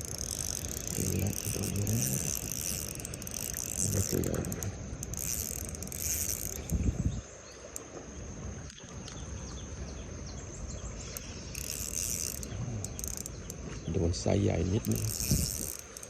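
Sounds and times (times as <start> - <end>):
fishing reel clicking: 0.0 - 6.9, 11.1 - 13.6, 14.6 - 16.0
insect drone: 0.0 - 16.0.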